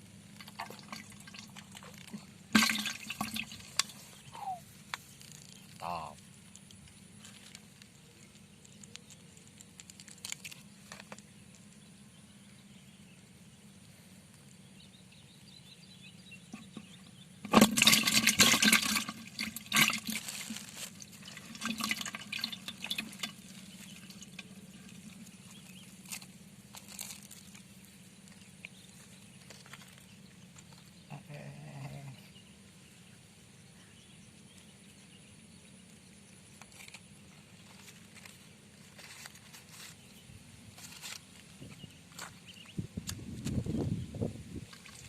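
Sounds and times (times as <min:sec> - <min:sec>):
water splashing: 0:00.4 - 0:04.6, 0:17.4 - 0:25.4, 0:44.7 - 0:45.0.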